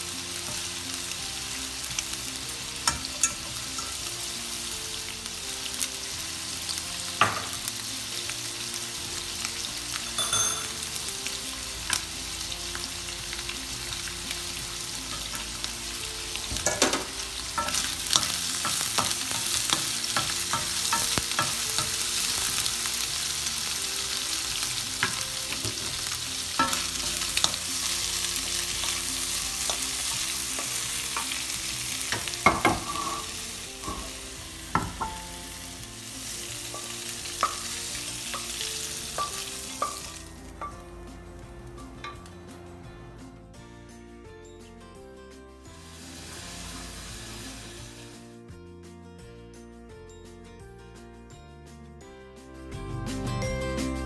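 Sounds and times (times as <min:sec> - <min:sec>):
prawns sizzling in a pan: 0:00.0 - 0:42.4, 0:45.6 - 0:48.4
wooden spoon knocking on pan: 0:32.1 - 0:33.2, 0:33.8 - 0:35.3.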